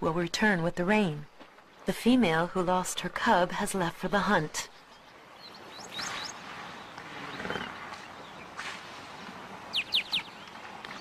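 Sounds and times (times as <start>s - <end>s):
birds whistling: 4.8s - 8.8s, 9.7s - 11.0s
low animal call: 7.0s - 8.0s.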